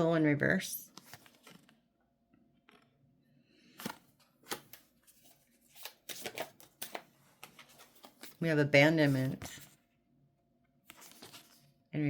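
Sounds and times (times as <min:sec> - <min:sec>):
cards clicking and tapping: 0:03.8 - 0:04.9, 0:05.8 - 0:08.3.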